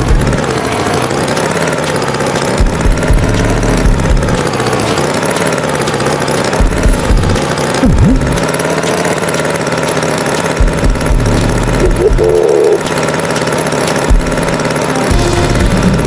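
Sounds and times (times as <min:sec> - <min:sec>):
tractor engine running: 0:00.0 - 0:16.0
short pitched sounds: 0:06.9 - 0:09.6, 0:11.2 - 0:13.2.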